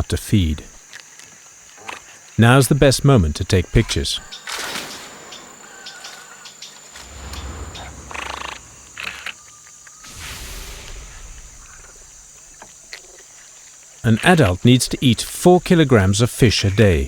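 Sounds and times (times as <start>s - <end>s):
high-pitched insect drone: 4.4s - 12.8s.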